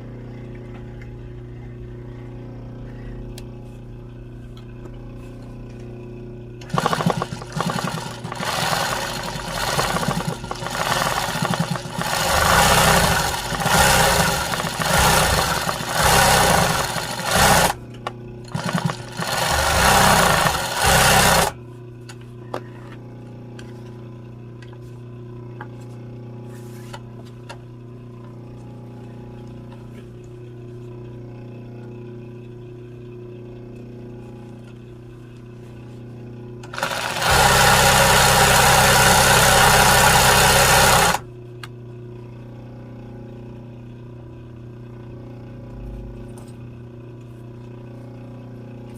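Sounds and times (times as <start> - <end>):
steady low hum: 0.0 - 48.9
sewing machine stitching: 6.6 - 17.8, 18.5 - 21.6, 36.6 - 41.2.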